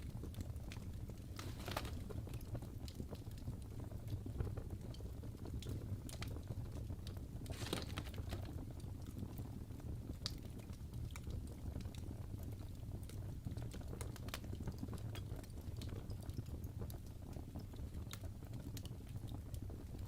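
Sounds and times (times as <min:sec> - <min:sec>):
wood fire crackling: 0:00.0 - 0:20.0
logs popping and snapping: 0:01.2 - 0:02.5, 0:07.4 - 0:08.8.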